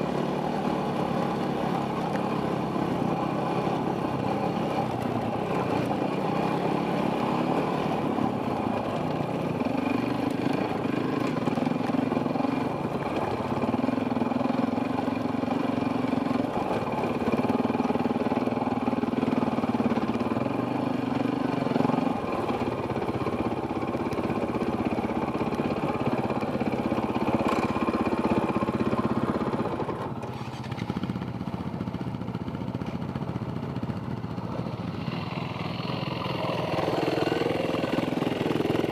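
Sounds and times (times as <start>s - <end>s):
dirt bike engine revving: 35.0s - 38.9s.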